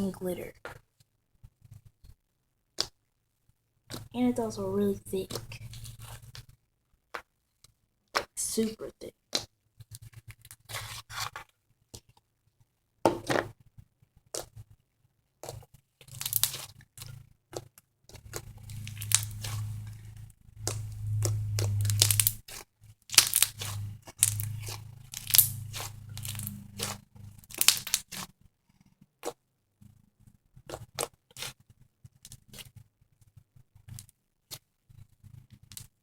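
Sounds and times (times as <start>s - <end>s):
low steady hum: 3.9s - 6.4s, 18.3s - 28.1s
slime crackling and popping: 15.4s - 20.0s, 20.6s - 28.4s, 30.6s - 32.8s.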